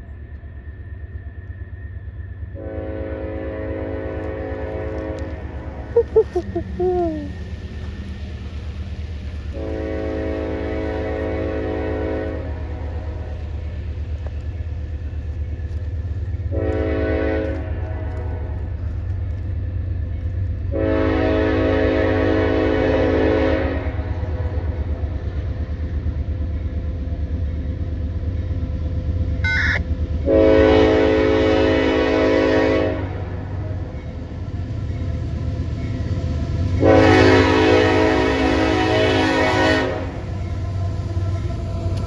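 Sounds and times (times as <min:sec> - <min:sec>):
train low rumble: 0:00.0 - 0:42.0
locomotive air horn blasts: 0:20.8 - 0:24.0, 0:30.3 - 0:33.2, 0:36.8 - 0:40.2.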